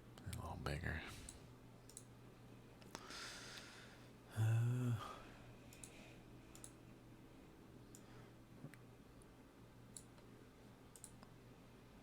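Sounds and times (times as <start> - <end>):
computer mouse clicks: 1.3 - 2.1, 5.7 - 6.8, 9.9 - 10.3, 10.9 - 11.4
man humming low: 4.3 - 5.3
man sighing: 4.3 - 5.4.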